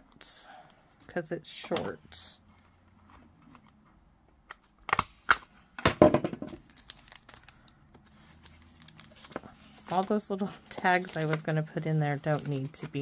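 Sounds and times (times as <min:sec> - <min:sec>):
paper rustling and crinkling: 0:06.6 - 0:13.0.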